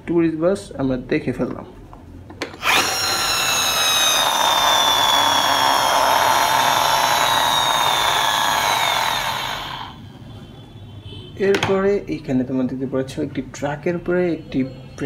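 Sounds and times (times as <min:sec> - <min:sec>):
toy vehicle motor whining: 0:02.6 - 0:10.0.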